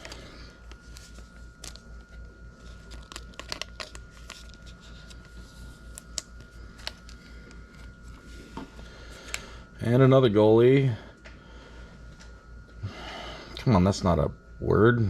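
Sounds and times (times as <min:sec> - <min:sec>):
cards clicking and crackling: 0:00.0 - 0:08.0
foil wrapper crinkling: 0:00.1 - 0:07.2.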